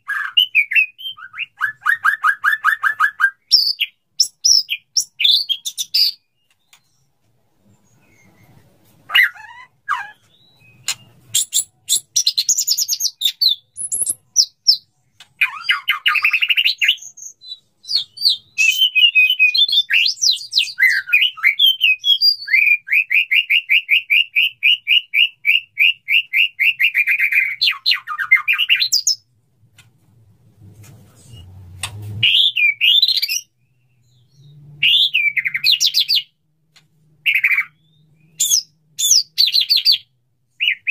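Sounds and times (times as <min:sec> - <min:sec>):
bird singing whistled phrases: 0:00.0 - 0:06.2, 0:15.4 - 0:29.2, 0:32.2 - 0:36.3, 0:37.2 - 0:40.9.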